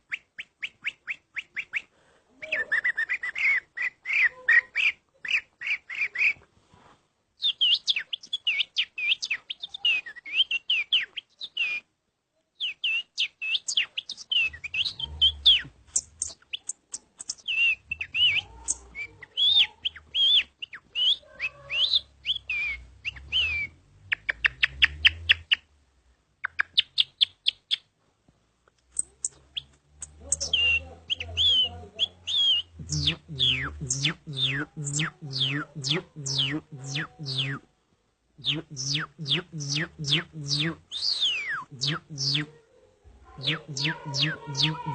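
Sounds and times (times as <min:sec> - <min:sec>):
man imitating bird calls: 0:14.1 - 0:25.5, 0:29.3 - 0:37.7, 0:38.4 - 0:42.6, 0:43.3 - 0:44.9.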